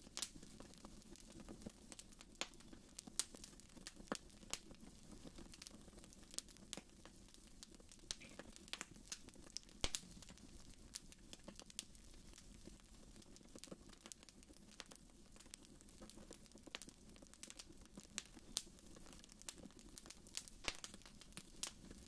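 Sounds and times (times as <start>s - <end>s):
wood fire crackling: 0.0s - 22.0s
sharp fire pop: 9.8s - 10.0s.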